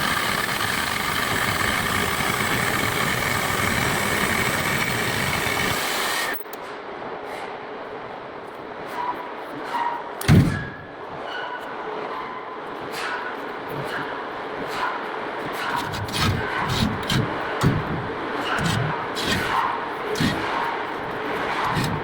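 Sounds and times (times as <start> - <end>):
cutting torch hissing: 0.0 - 6.5, 18.6 - 20.5
faint machine whine: 0.0 - 7.2
loud thump: 10.2 - 10.8.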